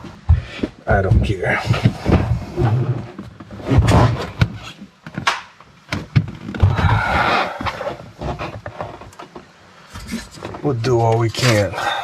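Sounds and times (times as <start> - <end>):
scraping or rustling: 6.3 - 11.8.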